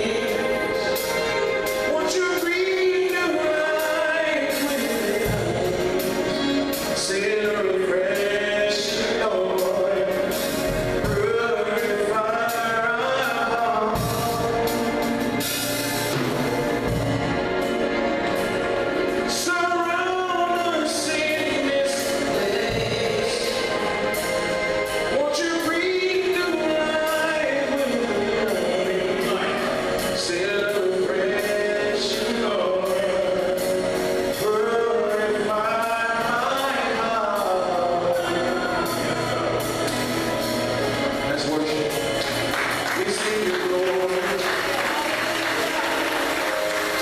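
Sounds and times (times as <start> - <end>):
drum and cymbal hits: 0.0 - 19.6
band accompaniment: 0.0 - 47.0
voices singing gospel: 0.0 - 47.0.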